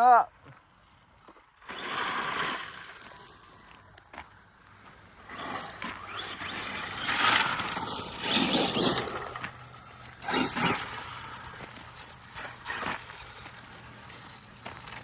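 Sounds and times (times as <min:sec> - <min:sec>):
rc truck motor surging: 0:01.6 - 0:04.1, 0:05.0 - 0:15.0
tyres scrabbling on rocks: 0:05.3 - 0:15.0.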